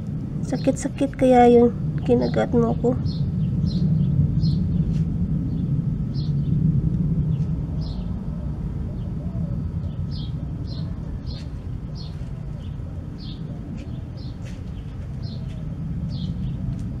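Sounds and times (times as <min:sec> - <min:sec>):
low outdoor rumble: 0:00.0 - 0:17.0
small bird chirping: 0:09.8 - 0:16.7.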